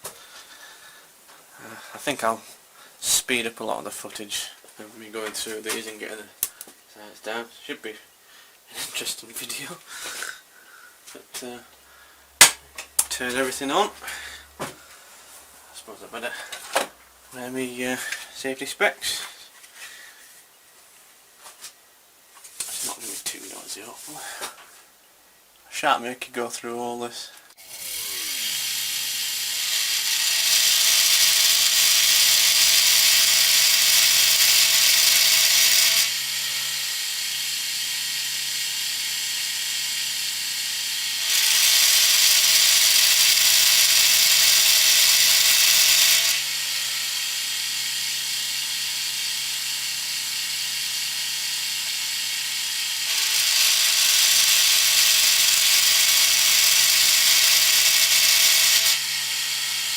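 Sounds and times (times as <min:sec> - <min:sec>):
milling cutter hissing: 0:27.6 - 0:39.6, 0:40.2 - 0:47.8, 0:52.0 - 0:59.9
milling machine humming: 0:27.6 - 0:59.9.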